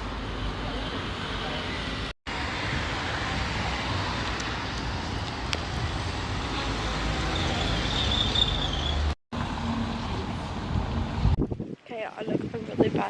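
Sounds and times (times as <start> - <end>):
road traffic rumbling: 0.0 - 11.4.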